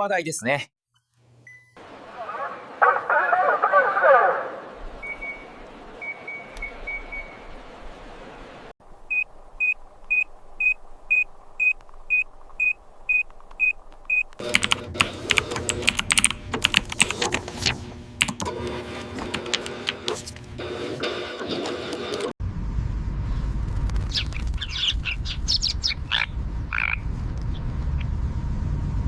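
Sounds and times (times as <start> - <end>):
high electronic beep: 5.0 - 7.4.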